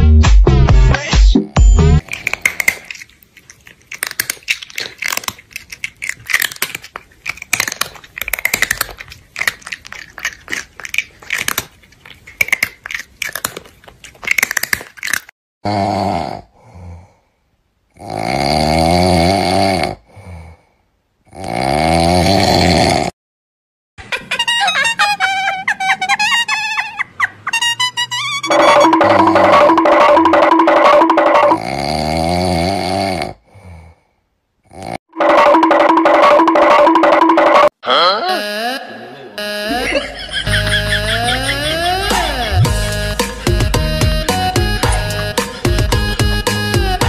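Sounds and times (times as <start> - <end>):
crunchy chewing: 2.0 - 15.3
loud snoring: 15.6 - 17.1, 17.9 - 20.6, 21.3 - 23.2, 31.5 - 34.0, 34.6 - 35.0.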